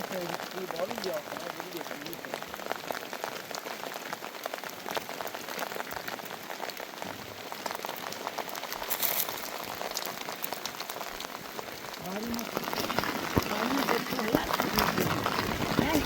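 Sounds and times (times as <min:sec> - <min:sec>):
rain pattering: 0:00.0 - 0:16.0.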